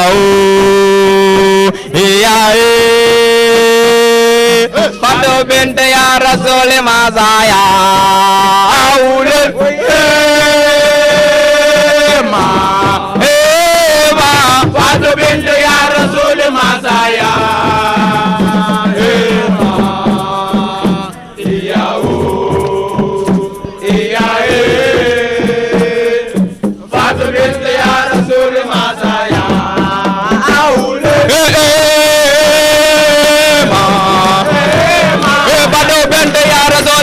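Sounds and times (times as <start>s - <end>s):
pulsing beat: 0.1s - 37.0s
musical backing: 9.3s - 37.0s
sung refrain of praise: 9.6s - 37.0s.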